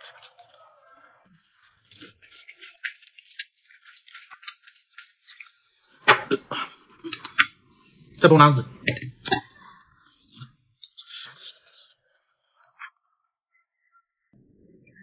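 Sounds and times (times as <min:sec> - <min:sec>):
person chewing food: 0:01.6 - 0:07.5.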